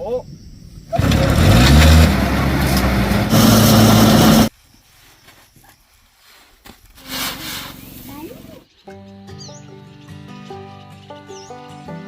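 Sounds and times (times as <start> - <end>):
small engine starting and running: 1.0 - 4.5.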